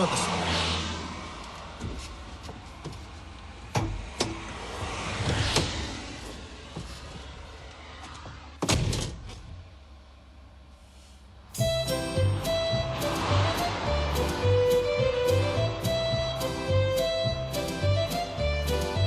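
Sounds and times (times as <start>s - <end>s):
vehicle passing: 0.0s - 8.6s, 11.7s - 18.6s.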